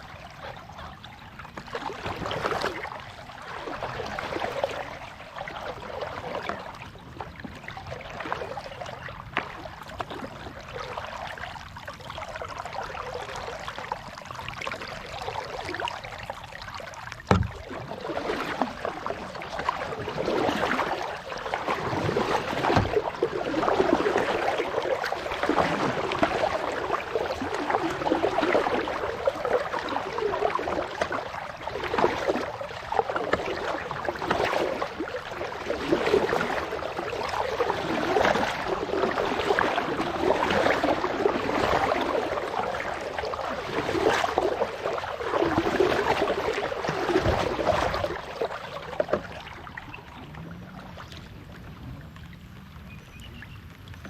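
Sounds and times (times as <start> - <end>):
kayak paddle splashing water: 0.0 - 54.0
sharp knock: 17.3 - 17.6.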